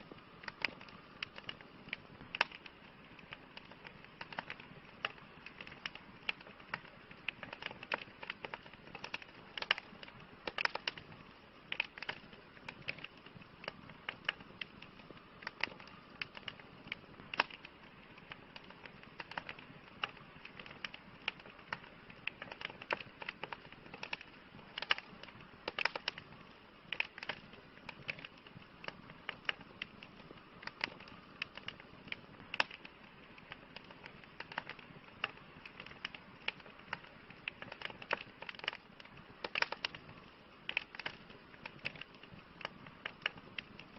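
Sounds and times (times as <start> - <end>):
campfire crackling and popping: 0.0 - 43.9.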